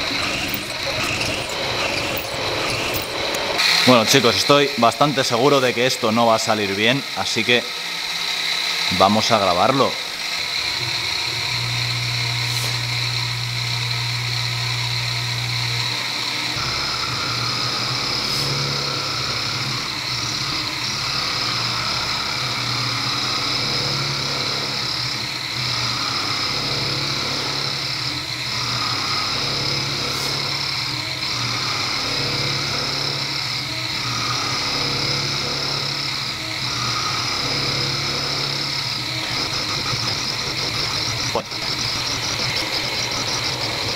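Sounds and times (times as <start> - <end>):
low machine hum: 0.0 - 3.7, 33.6 - 43.9
milling machine high whine: 0.0 - 43.9
higher cutting tone: 38.6 - 43.9.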